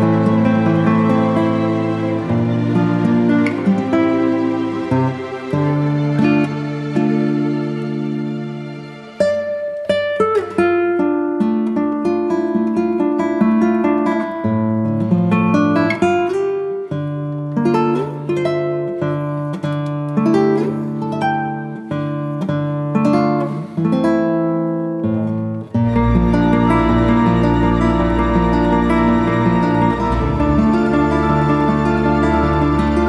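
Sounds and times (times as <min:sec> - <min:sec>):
acoustic guitar melody: 0:00.0 - 0:33.0.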